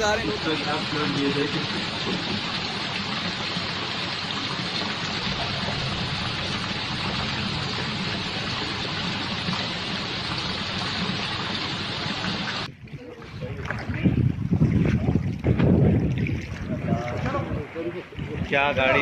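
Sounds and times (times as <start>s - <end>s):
heavy rain pouring: 0.0s - 12.7s.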